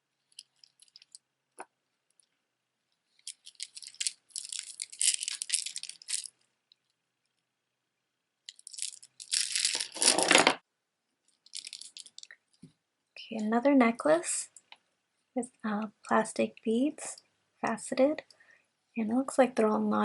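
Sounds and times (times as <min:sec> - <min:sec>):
jewelry clicking and rattling: 0:00.3 - 0:01.2, 0:03.1 - 0:06.9, 0:08.5 - 0:10.3, 0:11.3 - 0:12.4.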